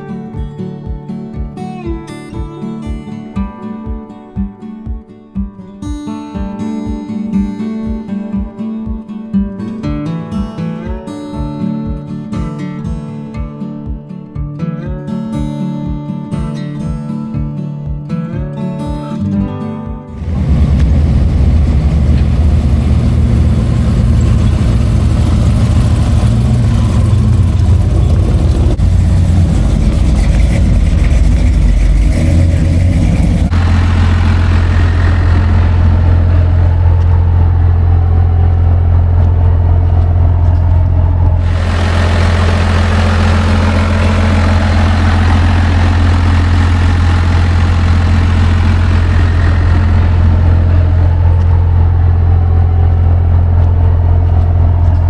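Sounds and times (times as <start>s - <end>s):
vehicle engine idling: 20.1s - 55.0s.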